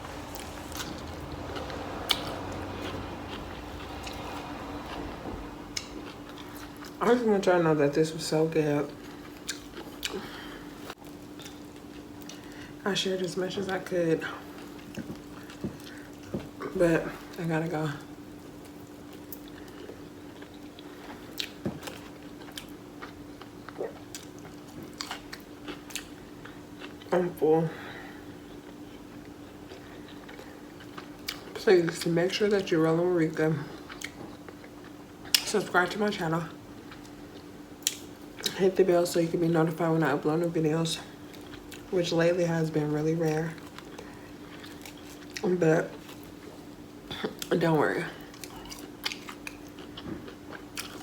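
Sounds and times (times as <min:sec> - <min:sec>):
low hum: 0:00.0 - 0:07.0
faint steady hum: 0:00.0 - 0:51.0
person chewing: 0:00.1 - 0:07.0, 0:09.0 - 0:12.6, 0:18.6 - 0:27.1, 0:28.4 - 0:32.0, 0:33.8 - 0:35.5, 0:41.2 - 0:41.9, 0:43.4 - 0:47.5, 0:48.2 - 0:51.0.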